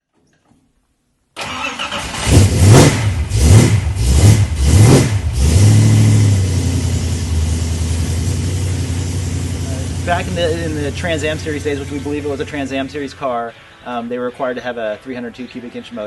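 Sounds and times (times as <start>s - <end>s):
car engine starting and revving: 1.4s - 12.9s
car engine idling: 5.6s - 13.2s.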